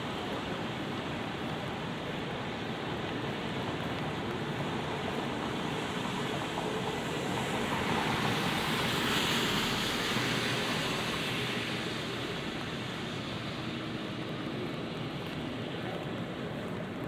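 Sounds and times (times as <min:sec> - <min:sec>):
light rain on wet street: 0:00.0 - 0:17.0
vehicle tyres hissing on wet road: 0:00.0 - 0:17.0.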